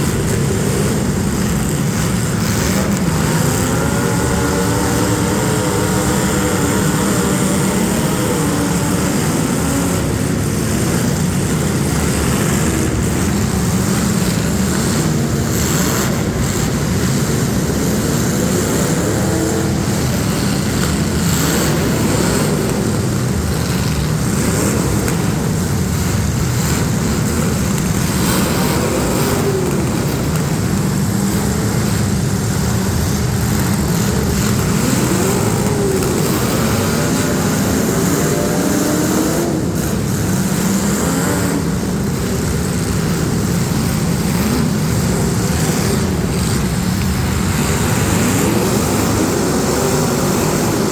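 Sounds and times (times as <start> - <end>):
car engines revving: 0.0 - 50.9.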